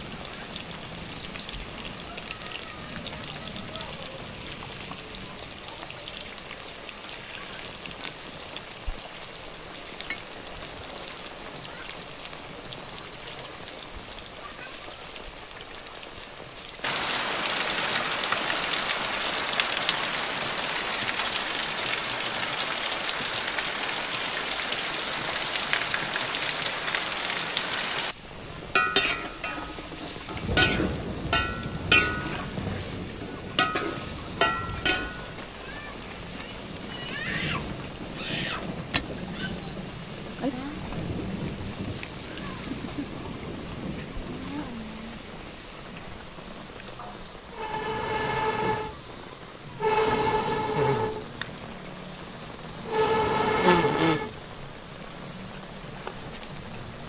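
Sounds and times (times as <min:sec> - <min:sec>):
food frying in oil: 0:00.0 - 0:57.0
heavy rain pouring off roof: 0:00.0 - 0:57.0
metal spatula scraping wok: 0:28.7 - 0:35.4, 0:47.5 - 0:49.0, 0:49.8 - 0:51.3, 0:52.8 - 0:54.3.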